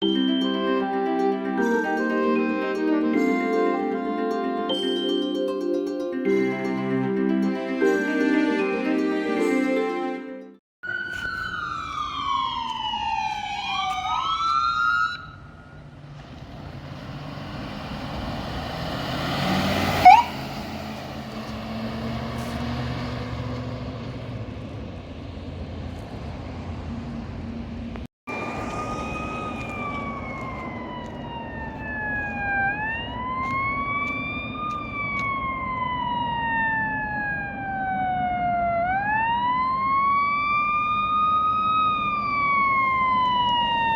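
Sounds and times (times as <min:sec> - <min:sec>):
sirens sweeping downward: 0:00.0 - 0:05.4, 0:06.2 - 0:43.9
wail siren: 0:00.6 - 0:05.0, 0:10.8 - 0:16.2, 0:17.3 - 0:23.5, 0:28.3 - 0:43.9
loud siren chirp: 0:10.8 - 0:16.2, 0:17.6 - 0:21.0, 0:28.3 - 0:43.9
heavy vehicle engine and road noise: 0:11.2 - 0:43.9.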